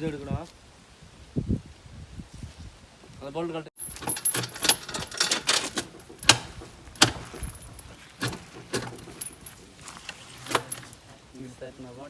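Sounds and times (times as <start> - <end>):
metal chain clinking: 3.8 - 11.5.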